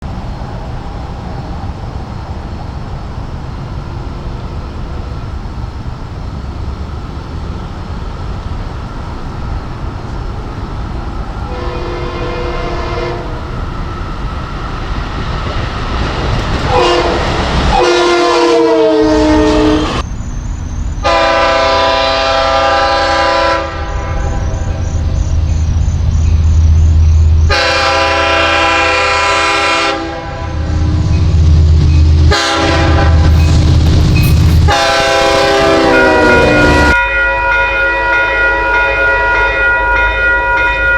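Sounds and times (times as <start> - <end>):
train rumbling: 0.0 - 40.9
train horn blasts: 11.4 - 13.7, 16.6 - 20.0, 21.0 - 24.8, 27.4 - 31.0, 32.2 - 40.9.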